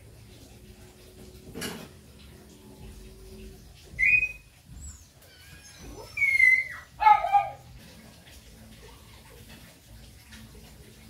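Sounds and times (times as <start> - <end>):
bird whistling: 4.0 - 5.0.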